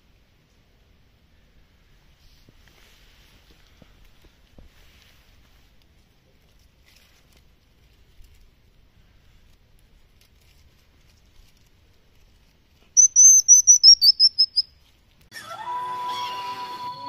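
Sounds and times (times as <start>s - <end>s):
baby hedgehog chirping: 13.0s - 14.8s.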